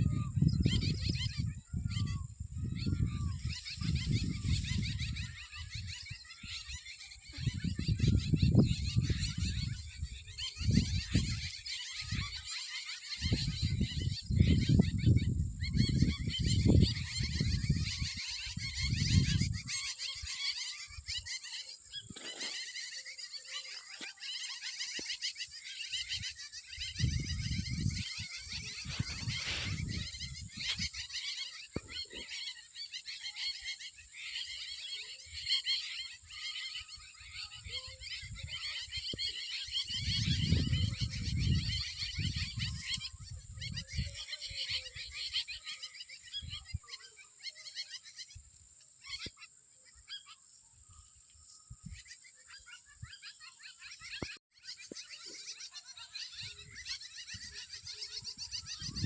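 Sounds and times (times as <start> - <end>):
wind rumble on microphone: 0.0 - 12.5, 13.1 - 20.0, 26.0 - 31.1, 37.0 - 45.3, 46.3 - 46.9, 50.8 - 53.3, 56.3 - 59.0
birds calling: 0.0 - 59.0.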